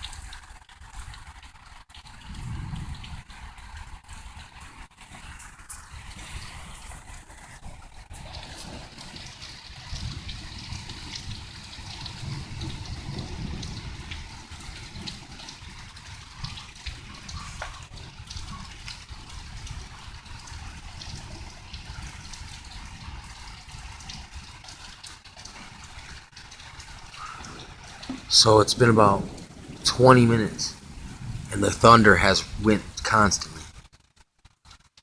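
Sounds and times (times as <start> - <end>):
rain falling and dripping: 0.0 - 35.0
low rumbling thunder: 2.2 - 4.6, 8.2 - 24.1, 26.8 - 33.7.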